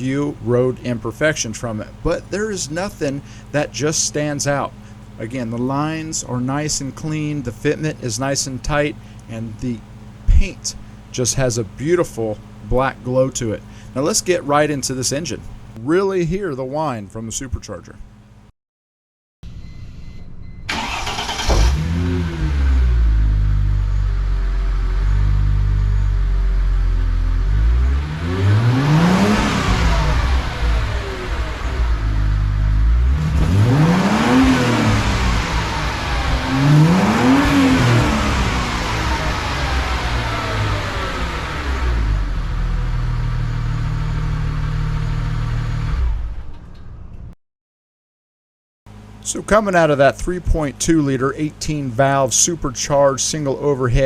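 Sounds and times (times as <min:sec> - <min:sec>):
car engine starting and idling: 0:20.0 - 0:47.4
engine revving with supercharger whine: 0:20.7 - 0:46.9.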